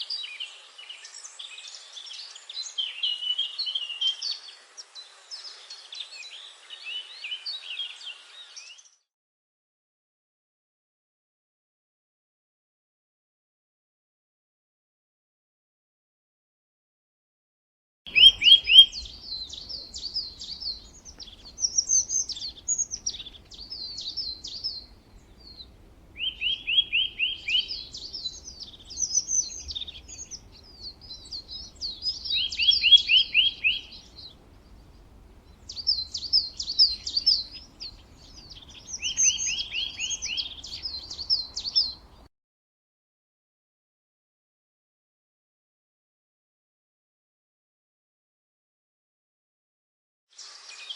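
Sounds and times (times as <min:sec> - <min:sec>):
songbird singing warble: 0:00.0 - 0:09.0, 0:18.1 - 0:42.3.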